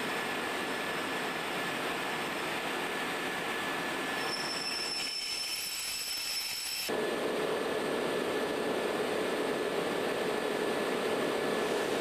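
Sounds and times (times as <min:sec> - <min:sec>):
train wheel squeal: 0:04.1 - 0:06.9.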